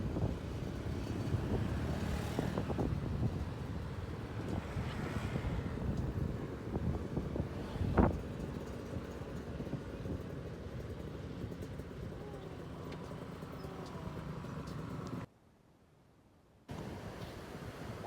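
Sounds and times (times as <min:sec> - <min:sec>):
wind rumble: 0:00.0 - 0:11.9
vehicle noise: 0:00.0 - 0:15.3.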